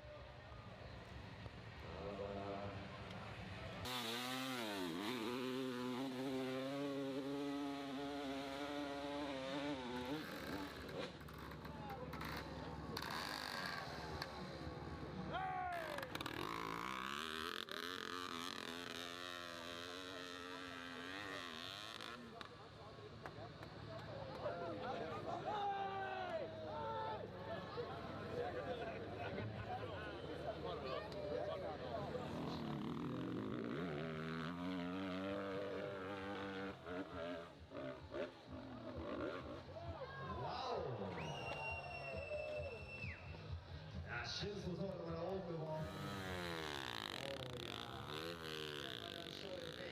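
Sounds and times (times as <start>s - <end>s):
motorcycle engine revving: 3.5s - 24.4s, 30.3s - 40.0s, 45.6s - 49.9s.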